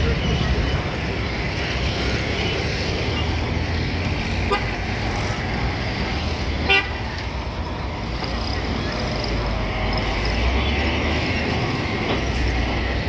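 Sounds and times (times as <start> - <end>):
road traffic noise: 0.0 - 13.0
vehicle horn toots: 6.6 - 7.0.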